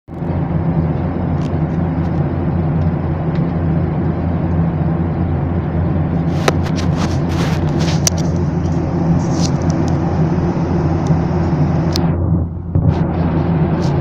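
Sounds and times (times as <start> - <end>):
airliner cabin drone: 0.1 - 14.0
crackles: 6.2 - 10.1.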